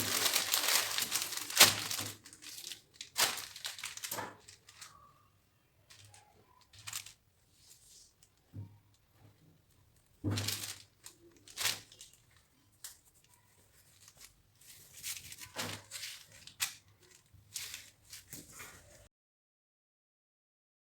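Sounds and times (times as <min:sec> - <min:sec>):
tearing sound: 0:00.0 - 0:04.2
packaging rustling and crinkling: 0:00.0 - 0:05.2, 0:05.9 - 0:19.1.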